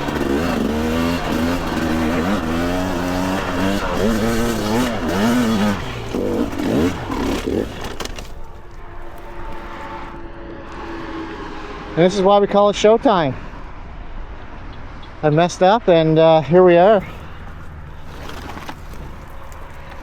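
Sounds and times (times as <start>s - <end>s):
dirt bike engine revving: 0.0s - 10.1s.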